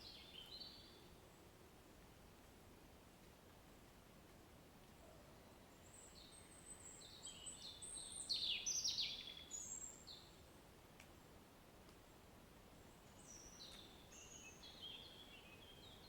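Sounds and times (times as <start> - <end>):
songbird singing: 0.0 - 1.4, 5.0 - 10.6, 12.8 - 16.0
faint rain hiss: 0.0 - 16.0.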